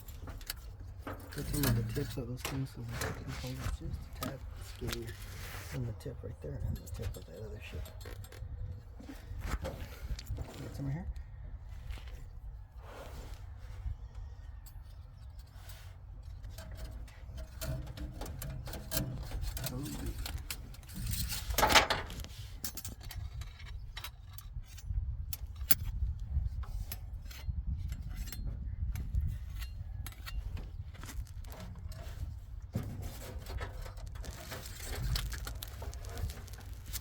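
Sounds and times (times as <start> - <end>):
metal scrape: 0.0 - 8.0, 31.5 - 37.0.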